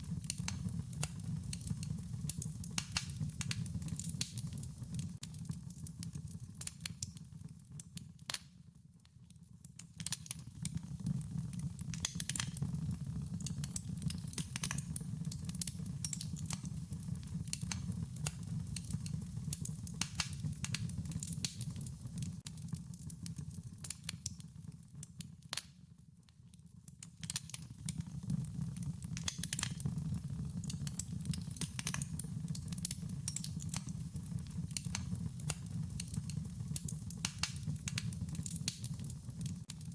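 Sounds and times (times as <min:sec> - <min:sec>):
wood fire crackling and popping: 0:00.0 - 0:39.9
low rumble of flames: 0:27.9 - 0:39.7.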